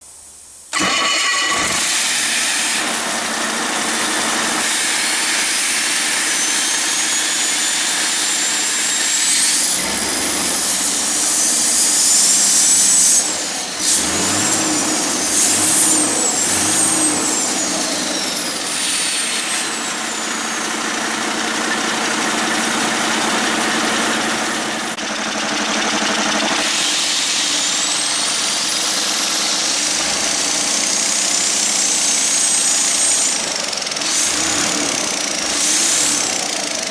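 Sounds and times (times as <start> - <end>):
diesel engine revving: 0.7 - 36.9
high whistle: 4.8 - 20.8.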